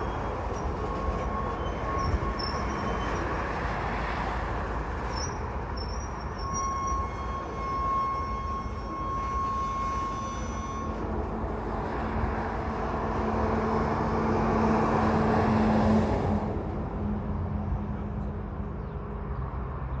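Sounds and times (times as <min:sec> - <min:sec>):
high wheel squeal: 0:00.0 - 0:04.2, 0:05.0 - 0:11.5
train wheels rumbling on rail: 0:00.0 - 0:19.9.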